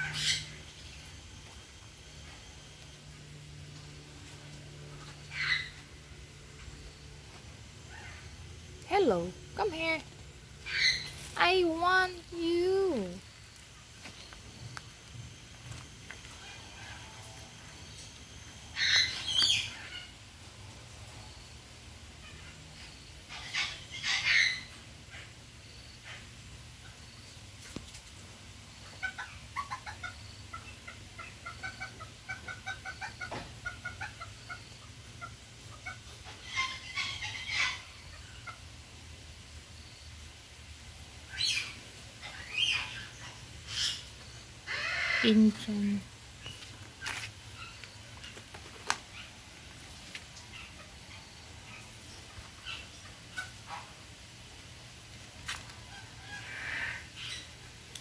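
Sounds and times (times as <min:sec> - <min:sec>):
bird calls: 0:00.0 - 0:02.6, 0:10.6 - 0:12.1, 0:15.6 - 0:20.1.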